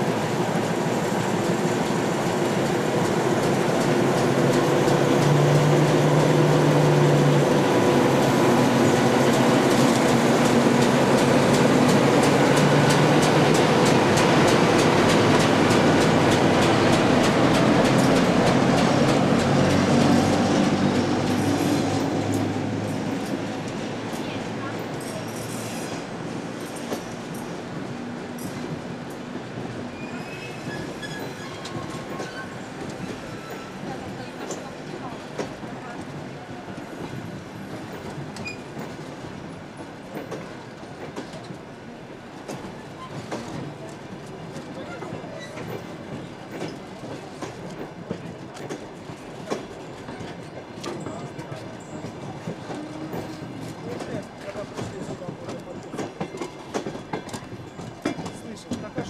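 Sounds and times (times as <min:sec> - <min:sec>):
diesel locomotive running: 0:00.0 - 0:25.3
train wheels rumbling on rails: 0:00.0 - 0:59.0
wheels clicking over rail joints: 0:42.4 - 0:59.0.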